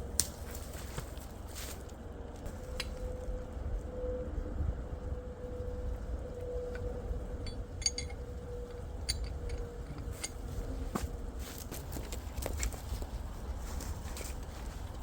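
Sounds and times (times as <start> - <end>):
footsteps on frozen ground and leaves: 0.0 - 2.7, 10.7 - 15.0
faint steady hum: 0.0 - 15.0
wind rumble on microphone: 2.2 - 15.0.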